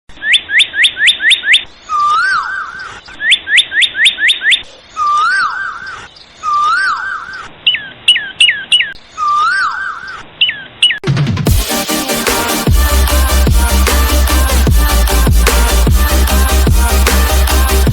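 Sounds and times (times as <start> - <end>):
rising bird-like chirps: 0.2 - 11.0.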